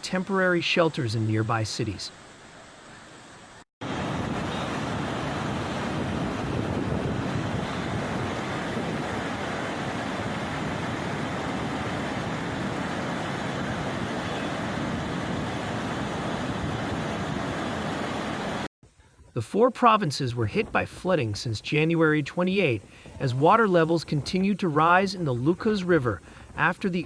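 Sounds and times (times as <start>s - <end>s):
floodwater rushing: 0.0s - 18.7s.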